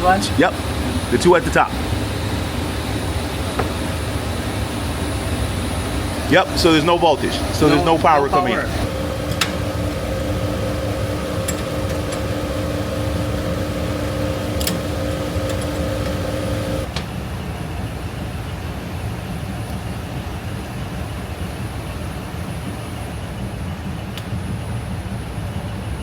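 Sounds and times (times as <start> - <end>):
machine humming with whine: 0.0 - 17.1.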